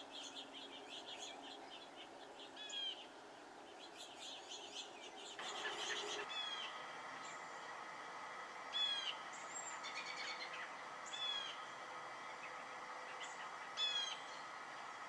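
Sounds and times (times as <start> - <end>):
birds chirping: 0.0 - 15.0
songbird alarm calls: 0.1 - 3.0, 3.8 - 7.4, 12.3 - 14.9.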